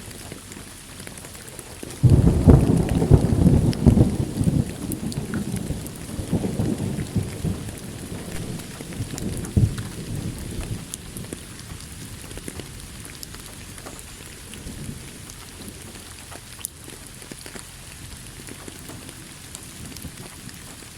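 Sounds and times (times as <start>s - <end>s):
raindrops pattering on surface: 0.0s - 20.9s
steady rain: 0.0s - 20.9s
thunder rumbling: 1.8s - 16.5s.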